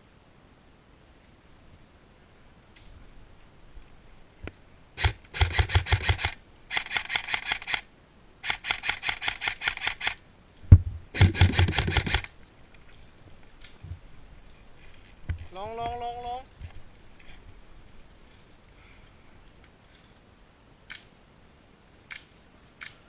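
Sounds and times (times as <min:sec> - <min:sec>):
airsoft gun firing rapid bursts: 0:05.0 - 0:07.8, 0:08.4 - 0:10.2, 0:11.2 - 0:12.3.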